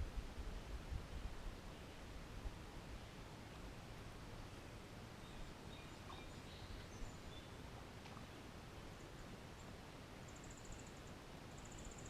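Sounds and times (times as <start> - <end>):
low background hiss: 0.0 - 12.0.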